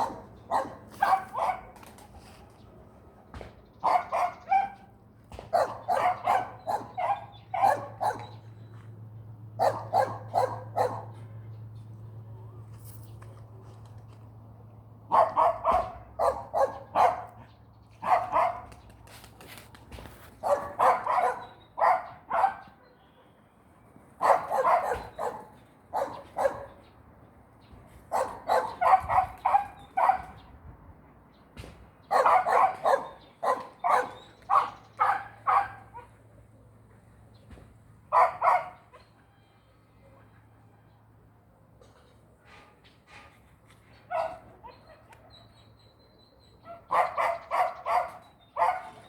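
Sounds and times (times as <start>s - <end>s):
dog barking: 0.0s - 1.8s, 3.8s - 8.4s, 9.6s - 11.2s, 15.1s - 18.7s, 20.4s - 23.0s, 24.2s - 26.8s, 28.1s - 30.4s, 32.0s - 36.2s, 38.1s - 39.1s, 44.1s - 45.6s, 46.7s - 49.0s.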